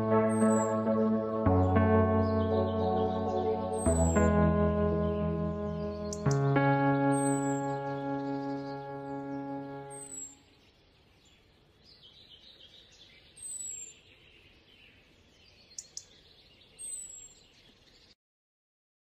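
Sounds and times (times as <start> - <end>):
background music: 0.0 - 10.3
faint outdoor ambience: 0.0 - 18.2.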